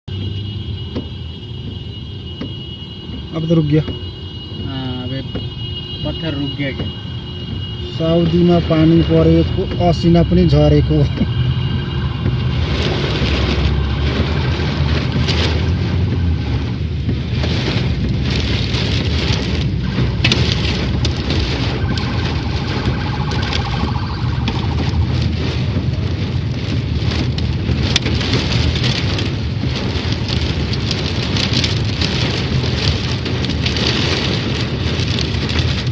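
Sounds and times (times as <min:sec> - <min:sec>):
heavy rain on hard surfaces: 0:00.1 - 0:35.9
low rumble: 0:19.8 - 0:27.3.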